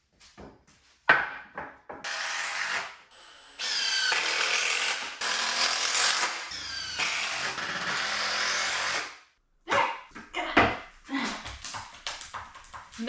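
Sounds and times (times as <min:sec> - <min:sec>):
power drill driving screw: 0:02.1 - 0:09.2.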